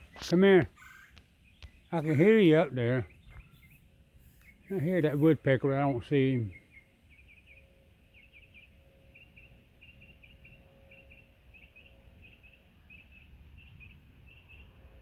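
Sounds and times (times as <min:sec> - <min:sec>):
faint steady hum: 0:00.0 - 0:15.0
rapid high bird chirps: 0:00.0 - 0:15.0.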